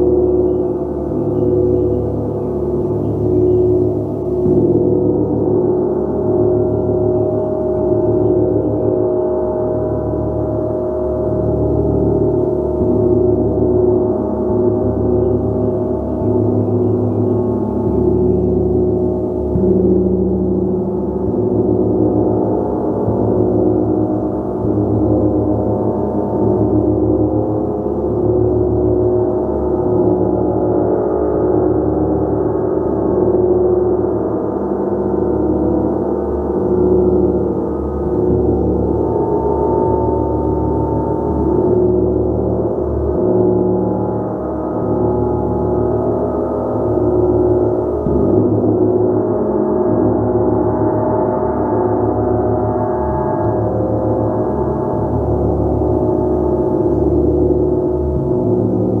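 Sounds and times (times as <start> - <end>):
sustained gong tones: 0.0 - 59.0.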